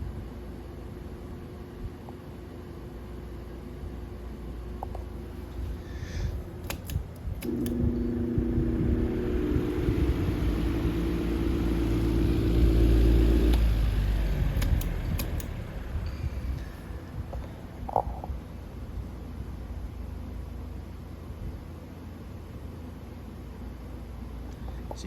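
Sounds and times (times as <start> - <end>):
electric fan motor humming: 2.9 - 18.0
sharp clicks: 6.6 - 7.9, 14.5 - 15.6
low rush of air: 7.5 - 17.8.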